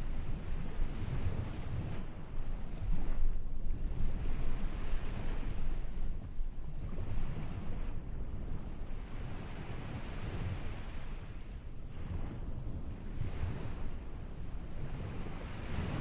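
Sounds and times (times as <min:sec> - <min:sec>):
wind buffeting microphone: 0:00.0 - 0:16.0
ocean waves breaking: 0:06.8 - 0:16.0.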